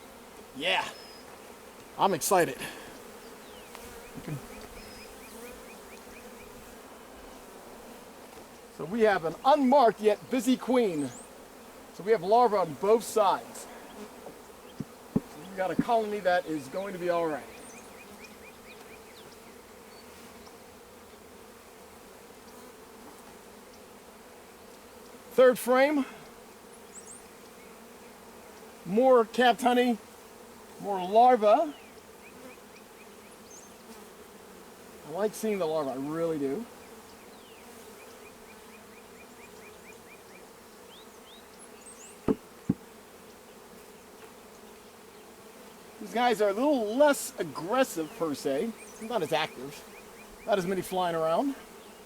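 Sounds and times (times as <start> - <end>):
honey bees buzzing: 0.0 - 52.0
sharp knocks: 14.8 - 16.0, 42.2 - 42.9.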